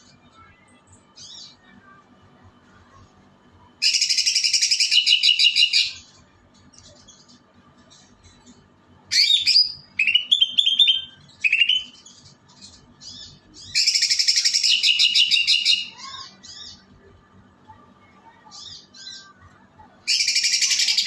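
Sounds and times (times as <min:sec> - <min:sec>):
songbird singing: 0:03.8 - 0:08.1, 0:09.1 - 0:16.9.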